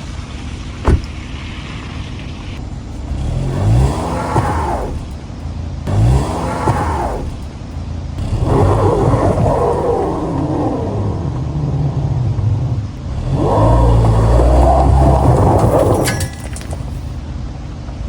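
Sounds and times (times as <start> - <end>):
car engine revving hard: 3.1 - 5.2, 5.8 - 7.5, 8.2 - 16.2.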